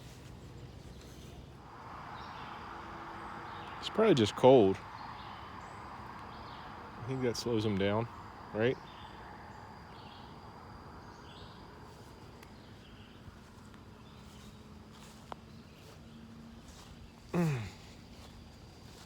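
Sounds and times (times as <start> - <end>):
person humming or grunting: 17.3 - 17.9.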